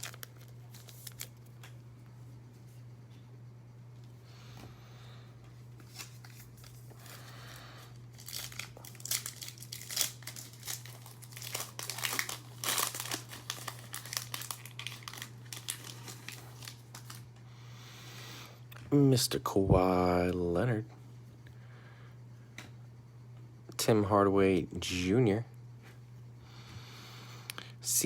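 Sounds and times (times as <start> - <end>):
foil wrapper crinkling: 0.0 - 1.7, 5.8 - 17.3.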